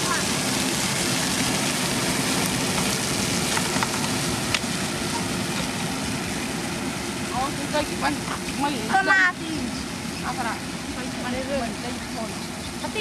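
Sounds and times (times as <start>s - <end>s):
motor grader rumbling on gravel: 0.7s - 5.7s.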